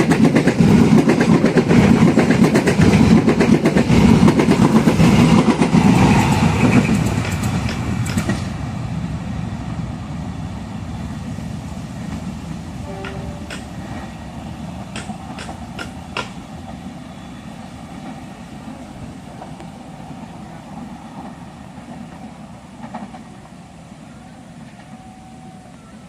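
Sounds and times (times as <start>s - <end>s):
train rumbling: 0.0s - 26.0s
sharp clicks: 14.9s - 16.4s.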